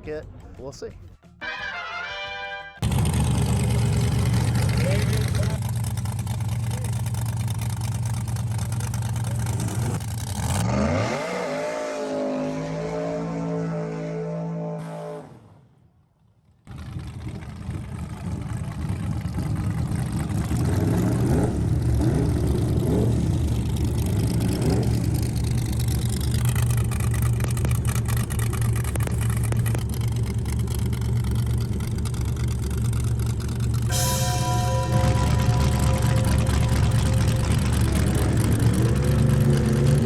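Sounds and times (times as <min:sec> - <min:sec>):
race truck engine revving: 0:02.8 - 0:15.4, 0:37.0 - 0:40.0.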